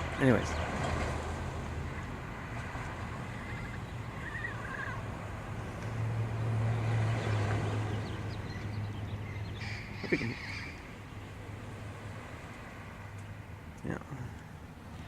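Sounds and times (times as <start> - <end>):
parrots calling: 3.2 - 5.1, 8.4 - 11.1
parrot harsh squawk: 9.6 - 10.8.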